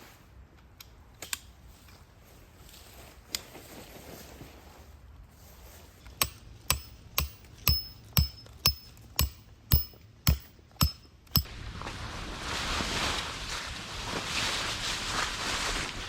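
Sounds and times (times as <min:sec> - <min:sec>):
hammer striking tent peg: 0:06.1 - 0:11.5.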